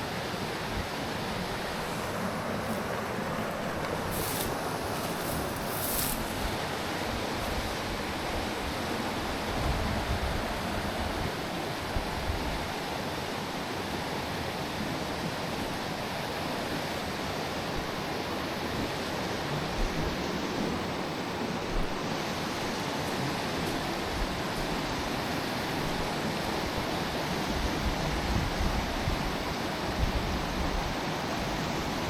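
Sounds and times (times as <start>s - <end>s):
stream water rushing: 0.0s - 32.0s.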